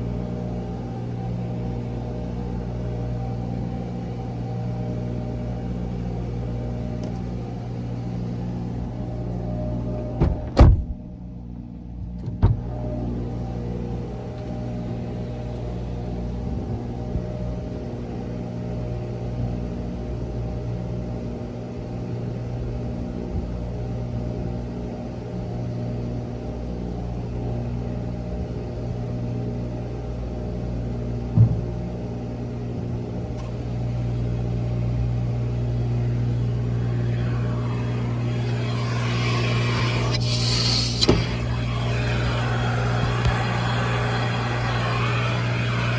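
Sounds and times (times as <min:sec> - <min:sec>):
single knock: 0:31.4 - 0:31.7
bright hiss: 0:33.4 - 0:45.9
motor humming: 0:33.4 - 0:45.9.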